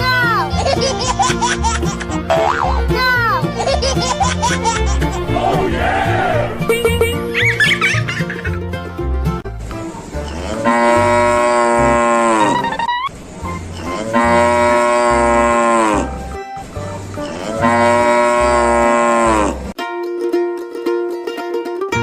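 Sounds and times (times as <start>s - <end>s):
background music with steady beat: 0.0s - 10.5s
cow mooing: 10.3s - 12.6s, 13.8s - 16.2s, 17.2s - 19.7s.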